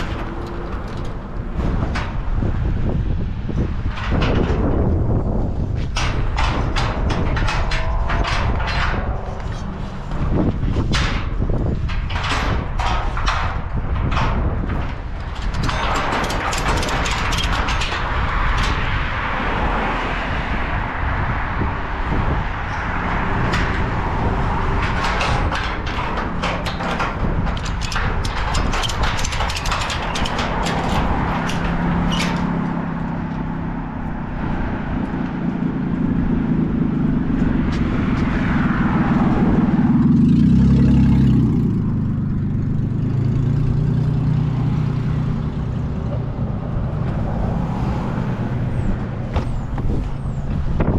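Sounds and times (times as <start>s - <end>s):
sharp clicks and crunches: 0.0s - 19.3s, 22.7s - 33.6s.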